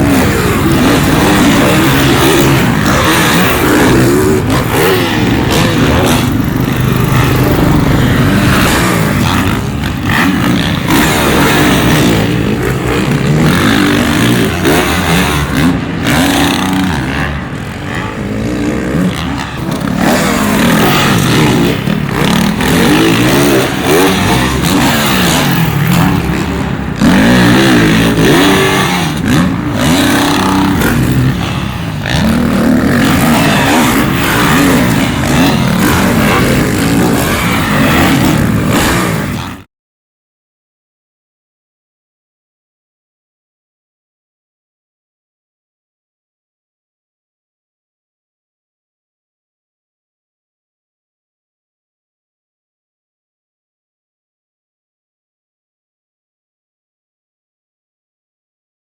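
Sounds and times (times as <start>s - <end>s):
dirt bike engines revving: 0.0s - 39.7s.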